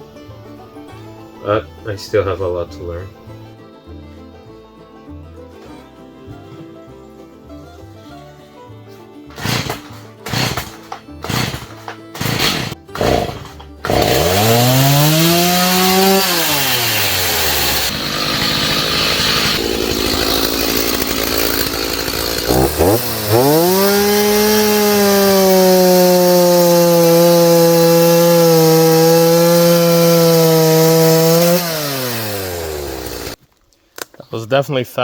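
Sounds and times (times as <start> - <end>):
chainsaw cutting wood: 9.3 - 33.4.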